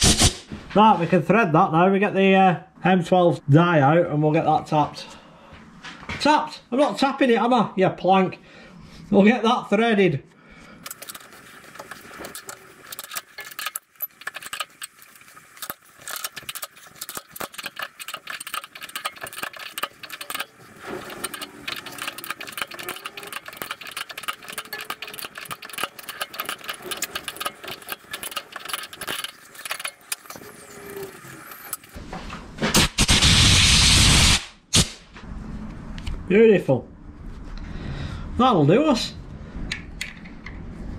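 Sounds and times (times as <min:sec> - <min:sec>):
compressed air blast: 0:00.0 - 0:00.5, 0:32.7 - 0:35.1.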